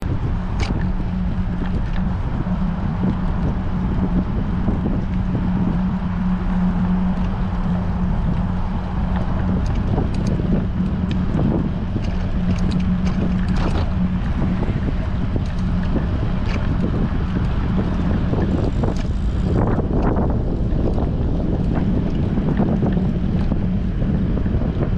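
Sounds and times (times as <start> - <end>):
constant low hum: 0.0 - 24.9
light ticks and rattles: 0.0 - 24.9
wind buffeting microphone: 0.0 - 24.9.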